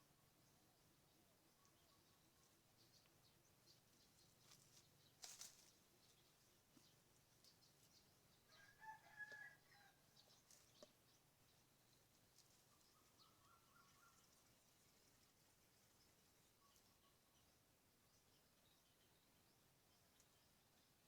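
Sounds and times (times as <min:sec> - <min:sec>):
faint clicks and chirps: 0:01.5 - 0:08.0, 0:10.2 - 0:11.2, 0:20.0 - 0:21.0
faint rooster crowing: 0:08.4 - 0:10.4.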